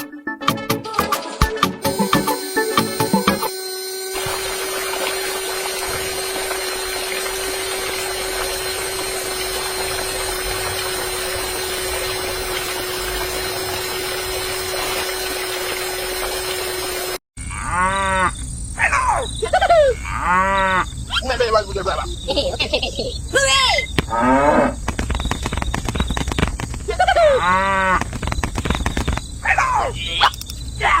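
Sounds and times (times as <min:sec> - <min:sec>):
mechanical whir with hum: 0:01.8 - 0:18.7
cow mooing: 0:17.4 - 0:18.3, 0:20.0 - 0:20.9, 0:24.1 - 0:24.8.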